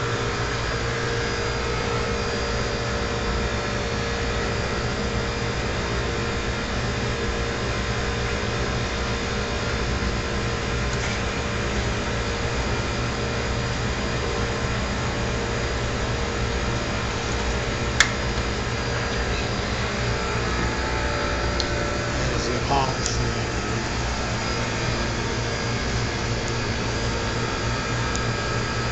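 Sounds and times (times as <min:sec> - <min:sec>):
blower motor whirring: 0:00.0 - 0:28.9.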